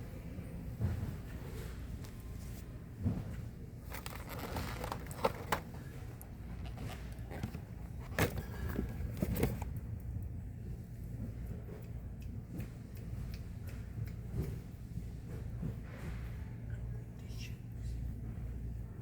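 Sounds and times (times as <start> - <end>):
low background hum: 0.0 - 19.0
plastic clicks and rattles: 3.9 - 5.8.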